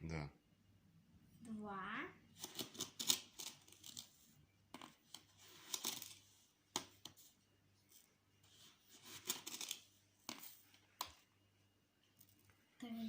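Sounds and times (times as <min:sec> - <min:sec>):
spoon scooping sugar: 0:02.4 - 0:11.3.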